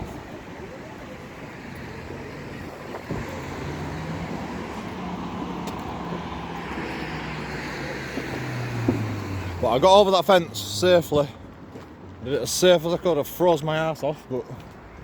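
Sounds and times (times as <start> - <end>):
vehicle engine humming: 0.0 - 11.5
traffic noise: 0.0 - 15.0.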